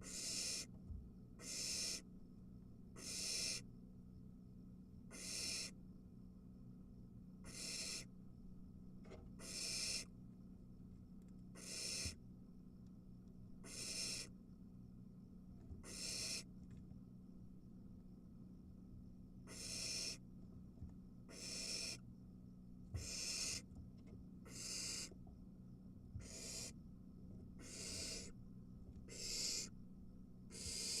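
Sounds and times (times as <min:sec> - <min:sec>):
owl nestlings hissing: 0:00.0 - 0:00.7, 0:01.4 - 0:02.0, 0:03.0 - 0:03.6, 0:05.1 - 0:05.7, 0:07.5 - 0:08.1, 0:09.4 - 0:10.1, 0:11.6 - 0:12.2, 0:13.6 - 0:14.3, 0:15.8 - 0:16.5, 0:19.5 - 0:20.2, 0:21.3 - 0:22.0, 0:23.0 - 0:23.6, 0:24.5 - 0:25.1, 0:26.2 - 0:26.8, 0:27.6 - 0:28.3, 0:29.1 - 0:29.7, 0:30.5 - 0:31.0
faint low hum: 0:00.0 - 0:31.0.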